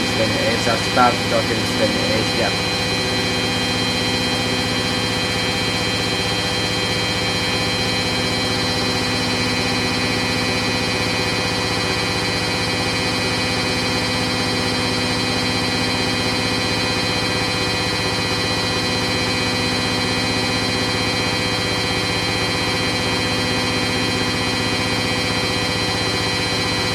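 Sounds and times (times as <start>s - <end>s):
washing machine spinning: 0.0s - 13.8s.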